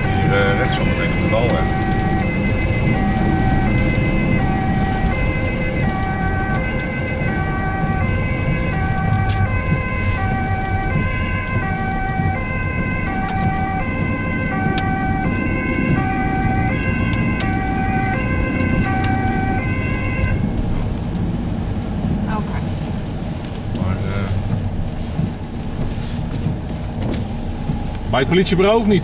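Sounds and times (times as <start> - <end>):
ambulance two-tone siren: 0.0 - 21.2
engine and road rumble: 0.0 - 29.0.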